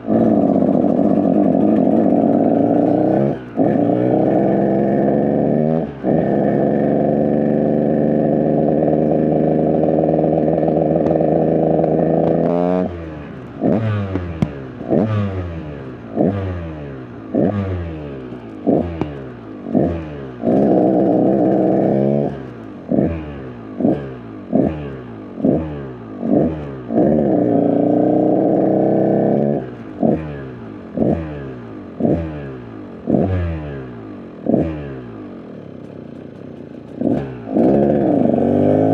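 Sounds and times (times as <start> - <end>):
dirt bike engine revving: 0.0 - 35.4, 36.2 - 38.9.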